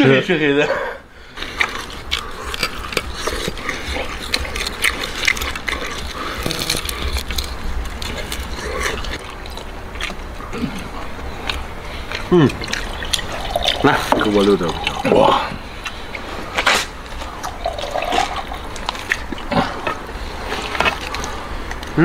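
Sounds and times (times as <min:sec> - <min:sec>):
man chewing and lip-smacking: 0:01.2 - 0:22.0.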